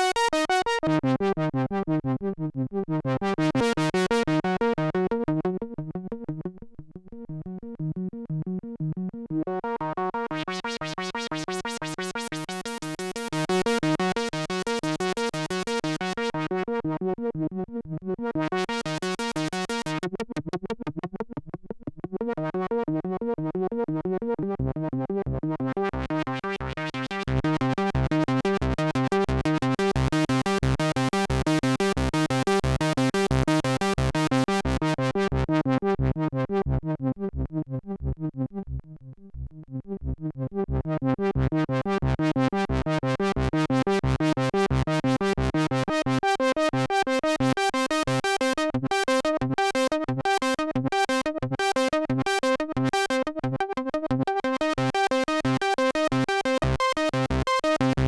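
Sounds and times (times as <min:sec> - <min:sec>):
synthesizer arpeggio: 0:47.6 - 0:57.9.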